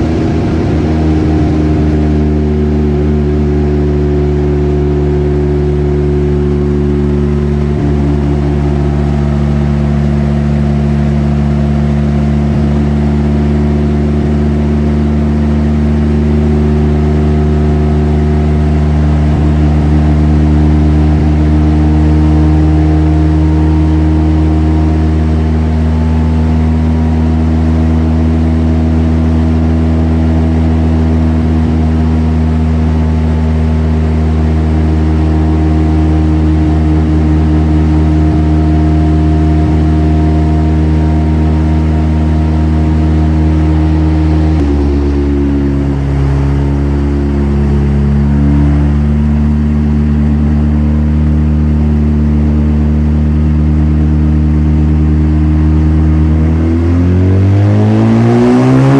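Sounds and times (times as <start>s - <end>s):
rotary engine running loud: 0.0s - 58.9s.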